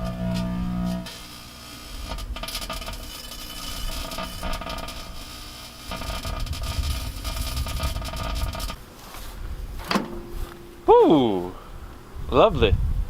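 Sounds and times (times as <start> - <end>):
microwave oven humming: 0.0 - 9.0, 9.7 - 12.2.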